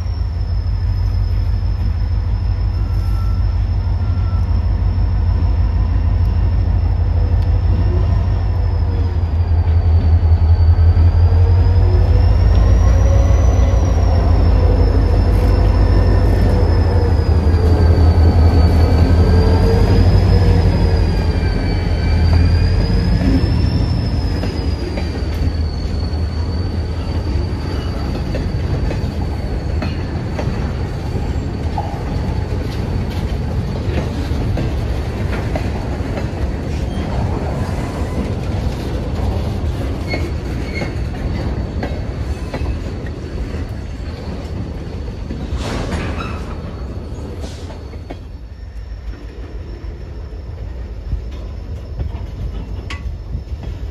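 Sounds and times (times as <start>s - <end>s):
wavering high squeal: 0.0s - 32.6s
diesel locomotive rumbling past: 0.0s - 53.9s.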